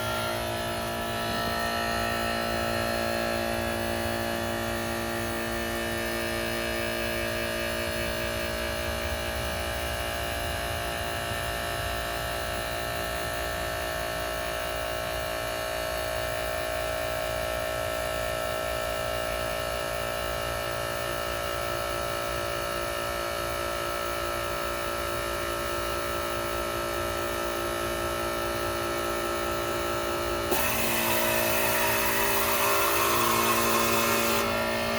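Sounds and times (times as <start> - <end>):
harsh air conditioner noise: 0.0 - 34.9
air conditioner humming: 29.3 - 34.9.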